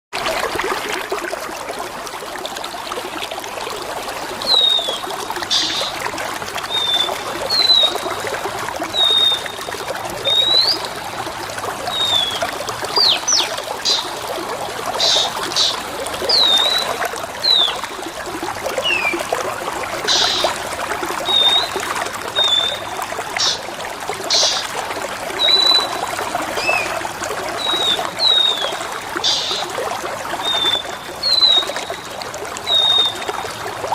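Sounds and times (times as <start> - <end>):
trickling water: 0.1 - 33.9
songbird chirping and whistling: 10.2 - 10.9.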